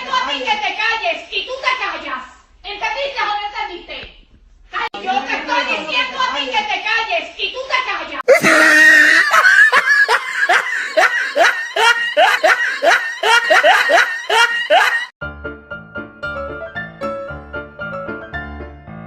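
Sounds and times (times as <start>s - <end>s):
rhythmic loud laughter: 8.3s - 15.1s
piano music: 15.2s - 19.0s.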